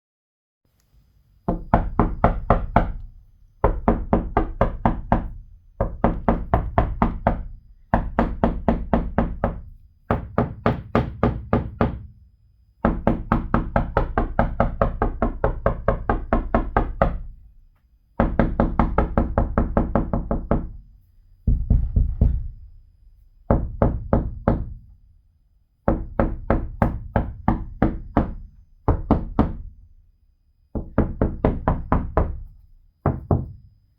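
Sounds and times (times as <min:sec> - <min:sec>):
knocking on window pane: 0:01.5 - 0:12.1, 0:12.8 - 0:17.4, 0:18.2 - 0:20.8, 0:21.4 - 0:22.6, 0:23.5 - 0:24.8, 0:25.9 - 0:29.8, 0:30.7 - 0:33.6.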